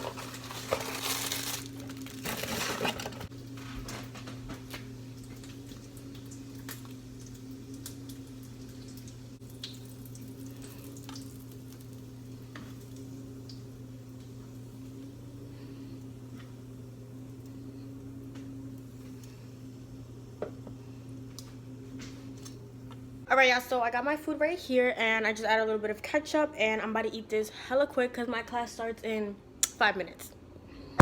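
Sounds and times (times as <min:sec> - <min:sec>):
packaging crinkling: 0:00.0 - 0:04.4
steady low hum: 0:00.0 - 0:24.6.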